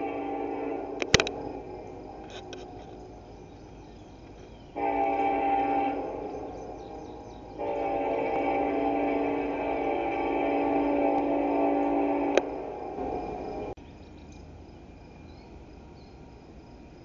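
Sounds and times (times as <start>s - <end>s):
locomotive air horn blasts: 0.0s - 3.1s, 4.7s - 13.7s
low train rumble: 0.0s - 17.0s.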